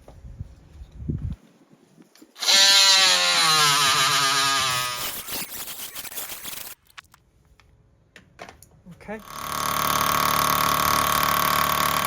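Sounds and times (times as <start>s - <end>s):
oscillating multi-tool cutting wood: 2.4s - 6.8s, 9.2s - 12.0s.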